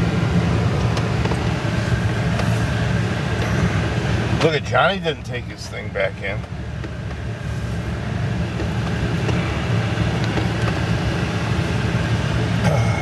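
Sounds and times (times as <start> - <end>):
road and body noise: 0.0 - 13.0
truck engine running: 0.0 - 13.0.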